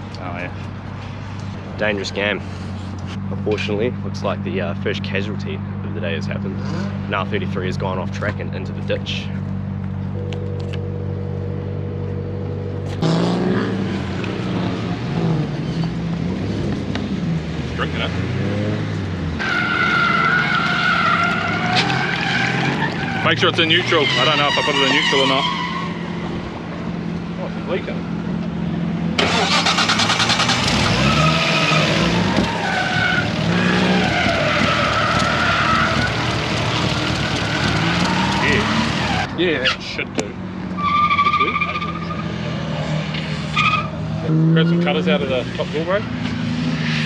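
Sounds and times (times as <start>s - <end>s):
car engine running: 0.0s - 15.2s, 25.8s - 39.3s
tyres screeching: 19.4s - 26.4s, 29.2s - 40.0s, 40.8s - 45.7s
car engine idling: 25.6s - 39.3s.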